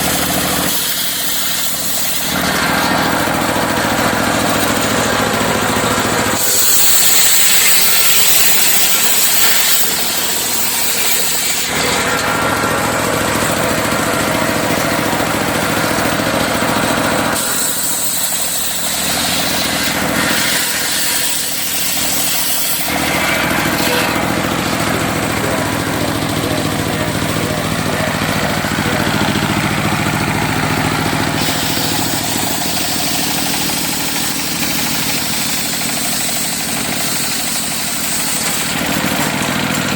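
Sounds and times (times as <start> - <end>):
saw blade ripping through log: 0.0 - 25.7, 28.6 - 39.9
sawmill engine running: 0.0 - 39.9.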